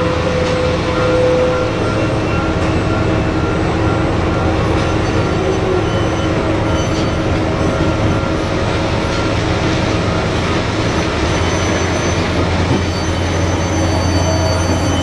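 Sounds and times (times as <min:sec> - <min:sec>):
dump truck engine drone: 0:00.0 - 0:15.0
steady whining tones: 0:12.0 - 0:15.0.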